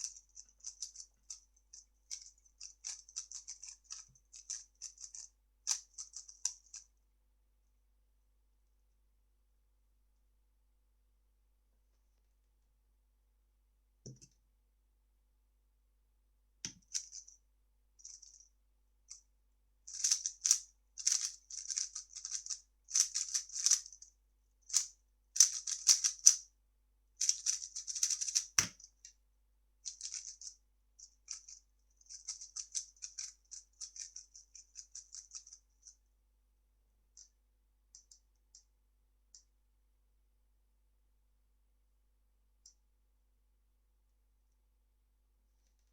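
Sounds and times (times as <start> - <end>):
speed cube plastic clicking: 0.0 - 6.8, 19.9 - 24.0, 24.7 - 26.4, 27.2 - 28.9, 29.9 - 30.5, 32.1 - 35.6.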